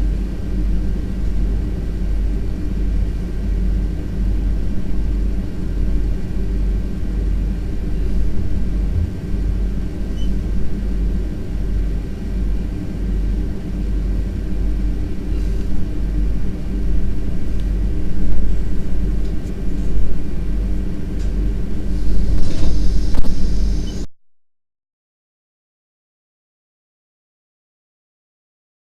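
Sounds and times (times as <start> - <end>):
electric train low rumble: 0.0 - 24.1
steady tones: 5.6 - 12.3
brief high hiss: 22.0 - 24.1.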